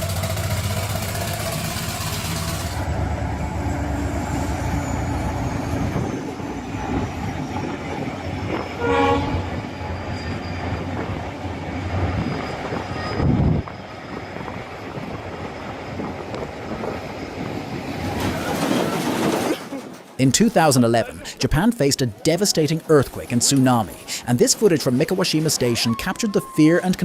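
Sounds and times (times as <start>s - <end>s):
steam traction engine running: 0.0s - 9.0s
steam whistle toot: 8.8s - 9.6s.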